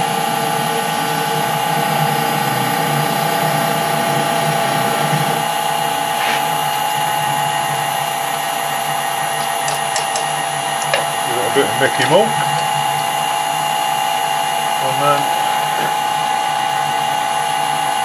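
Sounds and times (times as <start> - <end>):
metal lathe humming and whining: 0.0 - 18.0
faint brief scrape: 6.2 - 6.5.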